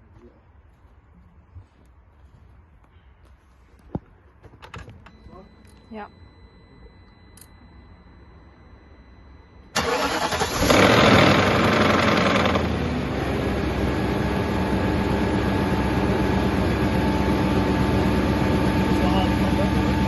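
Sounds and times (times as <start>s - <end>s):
car engine starting and idling: 9.1s - 20.0s
starter motor cranking: 9.8s - 12.8s.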